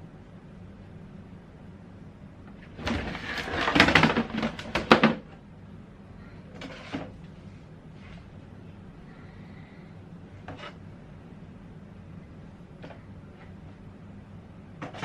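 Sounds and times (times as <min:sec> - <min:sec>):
household objects clattering: 0:02.6 - 0:05.3.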